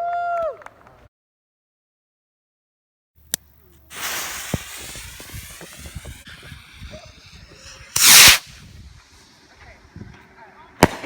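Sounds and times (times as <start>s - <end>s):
firework click: 3.3s - 9.6s
firework rocket hissing: 3.8s - 10.1s.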